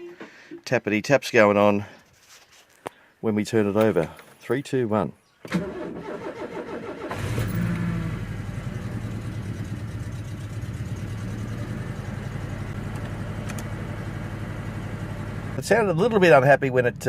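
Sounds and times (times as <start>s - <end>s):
car engine starting and idling: 5.4s - 17.0s.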